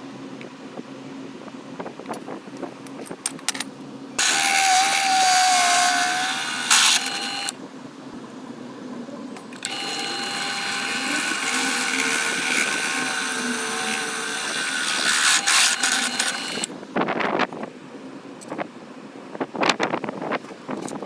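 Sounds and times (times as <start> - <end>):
belt grinder whining: 4.2 - 7.6, 9.6 - 16.7.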